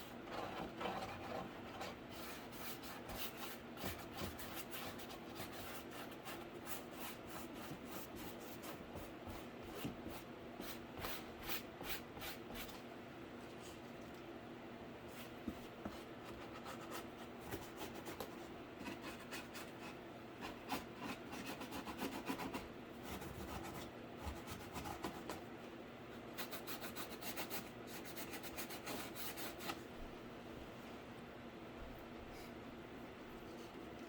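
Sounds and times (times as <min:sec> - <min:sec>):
scratchy rubbing on cardboard: 0:00.3 - 0:12.8, 0:15.2 - 0:25.3.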